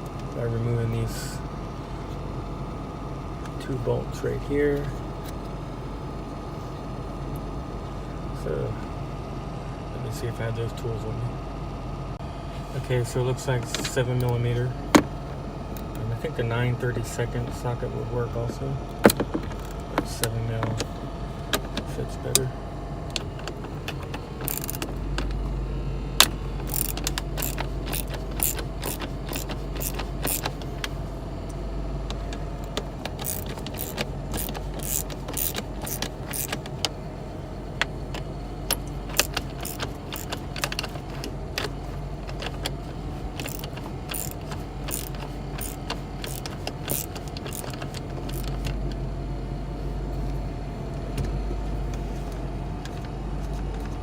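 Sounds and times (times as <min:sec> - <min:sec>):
car engine idling hum: 0:00.0 - 0:54.0
socket ratchet clicking: 0:23.1 - 0:25.4, 0:26.2 - 0:30.9, 0:32.1 - 0:36.9, 0:38.7 - 0:48.8.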